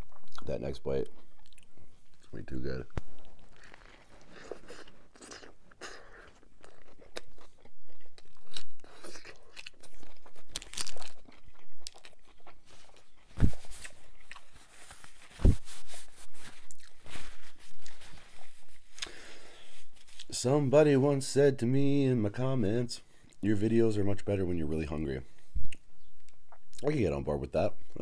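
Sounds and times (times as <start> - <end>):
person chewing a burger: 0.0 - 2.4, 3.0 - 20.3.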